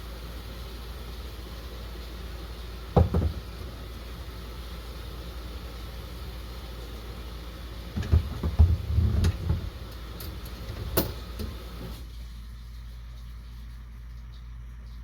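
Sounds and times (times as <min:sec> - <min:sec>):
low background hum: 0:00.0 - 0:15.0
low thumps and knocks: 0:03.0 - 0:03.5, 0:08.0 - 0:09.8.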